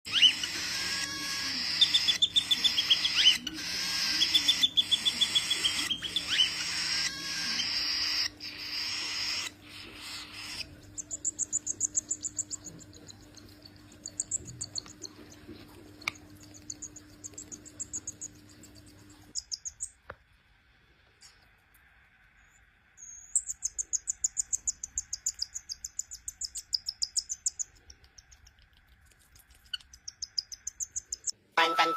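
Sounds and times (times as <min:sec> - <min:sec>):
baby parrots calling: 0:00.1 - 0:12.6.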